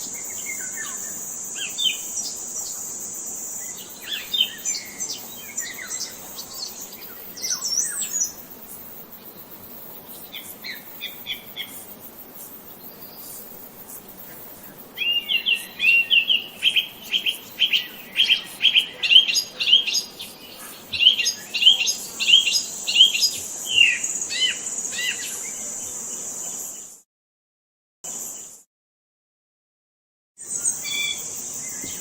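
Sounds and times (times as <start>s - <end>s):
songbird chirping: 0.0s - 8.5s, 14.2s - 26.0s.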